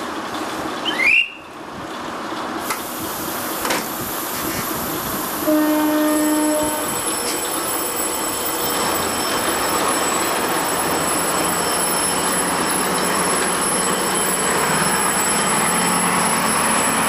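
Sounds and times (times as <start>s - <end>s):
train rolling rumble: 0.0s - 17.0s
steel wheels squealing: 4.3s - 17.0s
train horn blast: 5.4s - 7.0s.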